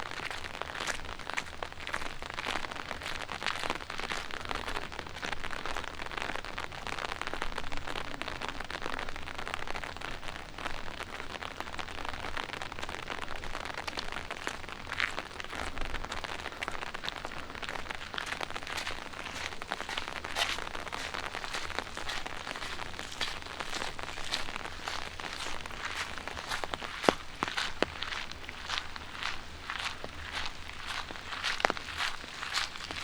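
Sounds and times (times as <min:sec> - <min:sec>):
light rain on pavement: 0:00.0 - 0:33.0.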